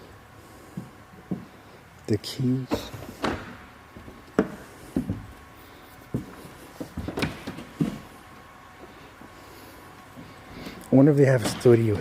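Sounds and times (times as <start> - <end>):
knocks and thuds: 2.7 - 3.7.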